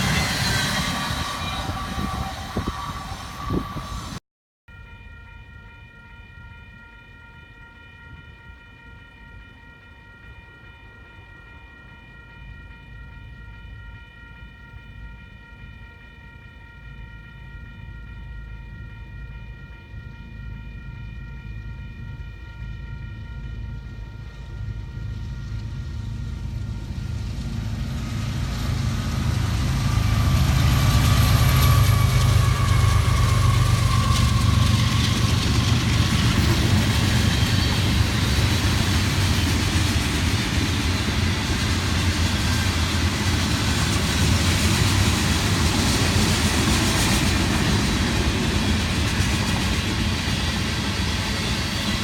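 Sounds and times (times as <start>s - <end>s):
train air horn: 0.0s - 6.4s, 13.8s - 38.6s
diesel locomotives rumbling past: 0.0s - 52.0s.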